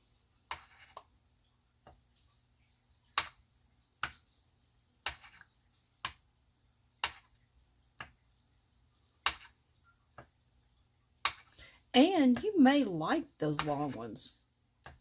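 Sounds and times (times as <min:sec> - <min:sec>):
marker tapping on photo paper: 0:03.1 - 0:03.4, 0:05.0 - 0:06.2, 0:07.0 - 0:07.4, 0:09.2 - 0:09.6, 0:11.2 - 0:11.6, 0:13.5 - 0:14.0.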